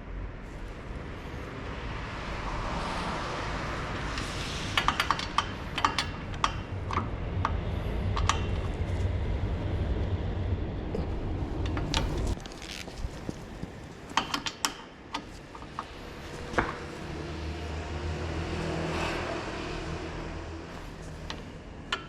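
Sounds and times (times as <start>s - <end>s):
steady low hum: 0.0s - 14.2s
hiss: 3.0s - 6.2s.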